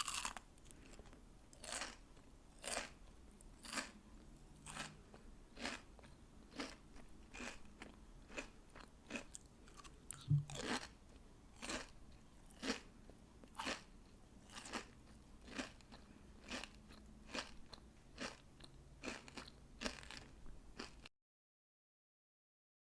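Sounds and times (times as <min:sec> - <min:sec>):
candy crunching: 0:00.0 - 0:02.0, 0:11.6 - 0:21.0.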